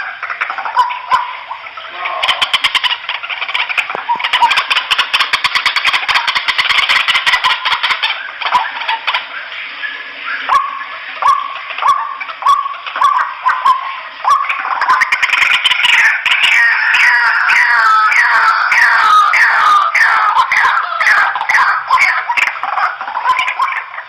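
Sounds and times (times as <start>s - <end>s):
waterhens chattering calls: 0.0s - 24.0s.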